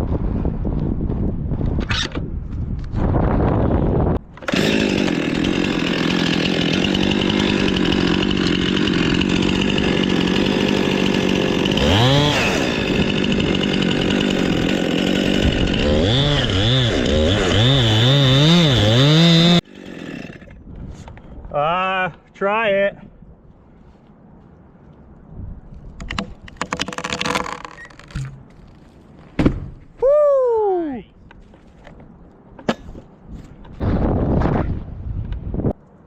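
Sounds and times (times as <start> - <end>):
chainsaw cutting wood: 4.3 - 20.6.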